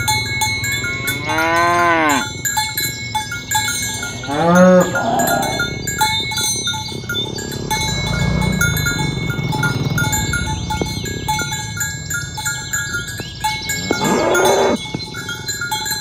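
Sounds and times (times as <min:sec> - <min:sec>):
bell tinkling: 0:00.0 - 0:16.0
cattle mooing: 0:00.8 - 0:02.3, 0:04.1 - 0:05.9, 0:13.8 - 0:14.8.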